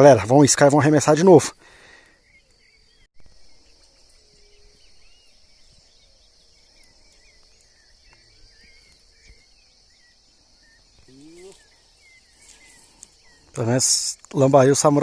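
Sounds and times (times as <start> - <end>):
short chirping calls: 2.0 - 15.0
high insect buzz: 2.6 - 14.3.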